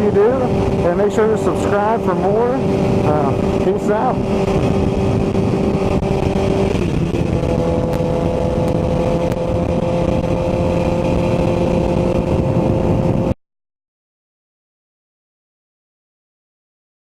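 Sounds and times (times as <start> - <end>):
motorcycle engine running: 0.0 - 13.4
wind and road noise: 0.0 - 13.4.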